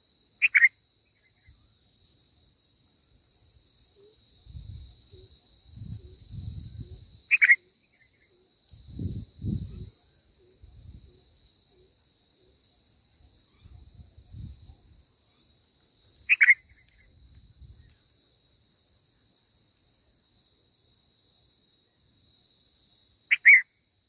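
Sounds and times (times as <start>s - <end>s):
high insect drone: 0.0s - 24.0s
sharp bird chirps: 0.4s - 1.7s, 6.8s - 8.4s, 16.2s - 18.0s, 23.3s - 23.7s.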